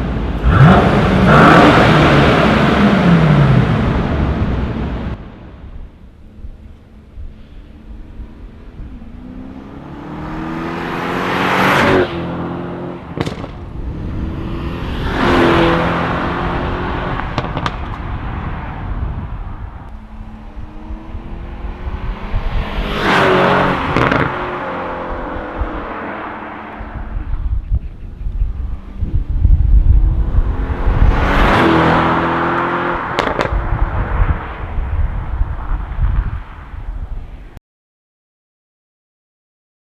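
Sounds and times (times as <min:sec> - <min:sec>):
car engine revving hard: 0:00.2 - 0:05.0, 0:09.1 - 0:17.8, 0:20.6 - 0:26.4, 0:30.0 - 0:33.6
exhaust cracks: 0:13.0 - 0:13.9, 0:17.1 - 0:18.4, 0:23.8 - 0:24.4, 0:32.6 - 0:36.3.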